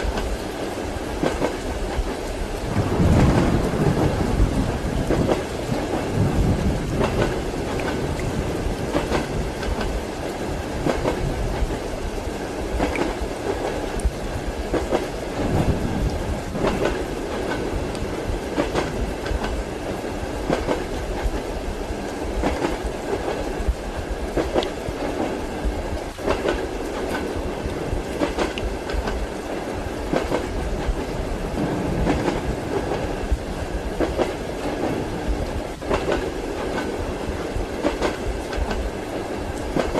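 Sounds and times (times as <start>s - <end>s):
train wheels clacking over rail joints: 0.0s - 11.9s, 12.7s - 21.5s, 22.4s - 29.4s, 30.0s - 39.0s, 39.6s - 39.9s
railway carriage rumble: 0.0s - 39.9s.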